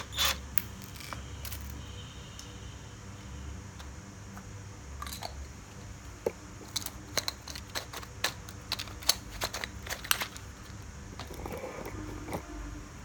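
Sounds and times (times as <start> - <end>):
objects clicking and knocking: 0.0 - 1.8, 5.0 - 12.5.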